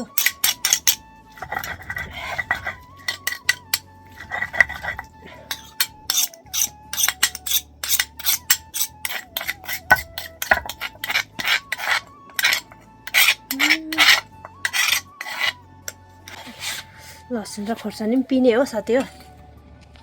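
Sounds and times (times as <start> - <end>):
garlic and chillies ground by hand: 0.0 - 19.4.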